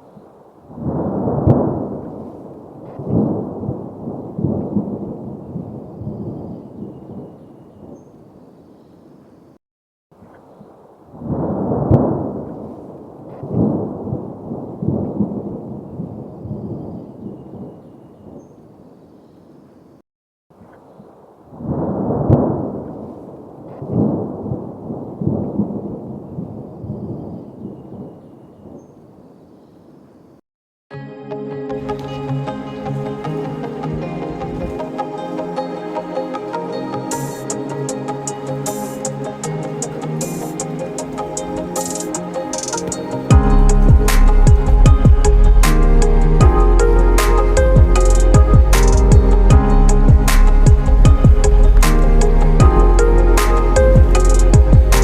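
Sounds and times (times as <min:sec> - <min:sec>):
thunder crack: 0:43.3 - 0:46.6
rolling thunder rumble: 0:43.3 - 0:46.9
thunder rumbling: 0:43.3 - 0:53.2.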